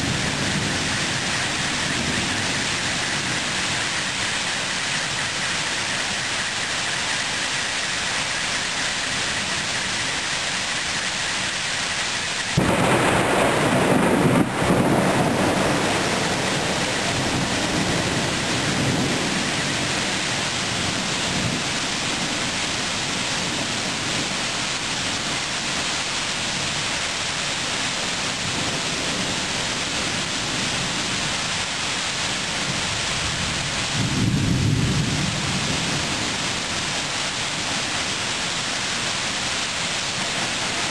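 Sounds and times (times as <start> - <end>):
rain falling: 0.0 - 40.9
thunder rumbling: 12.5 - 25.8, 32.3 - 39.0.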